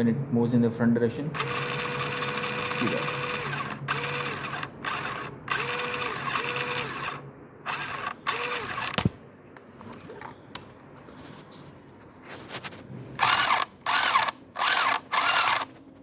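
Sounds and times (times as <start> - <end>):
electric motor and gearbox whirring: 1.4 - 9.1, 13.2 - 16.0.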